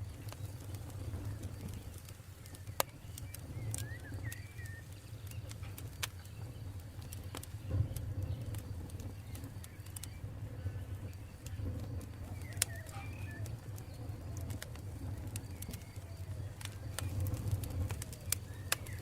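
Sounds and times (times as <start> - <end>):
campfire crackling and popping: 0.0 - 19.0
bird chirps: 1.2 - 5.5, 12.2 - 14.3.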